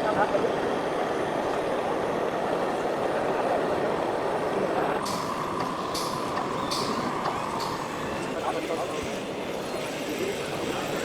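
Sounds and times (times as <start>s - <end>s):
radio-controlled truck: 3.1s - 11.0s.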